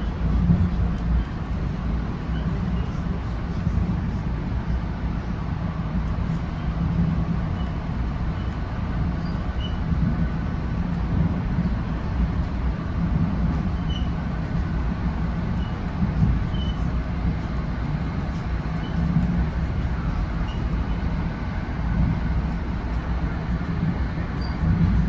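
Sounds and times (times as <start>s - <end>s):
wheels rumbling on rails: 0.0s - 25.0s
faint high squeaks: 24.4s - 24.6s.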